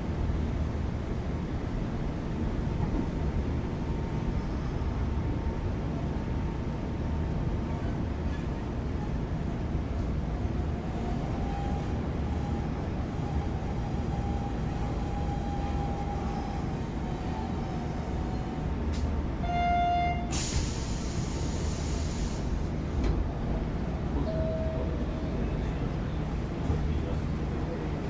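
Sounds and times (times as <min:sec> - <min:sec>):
train wheels rumbling on track: 0:00.0 - 0:28.0
air hiss: 0:20.3 - 0:22.5.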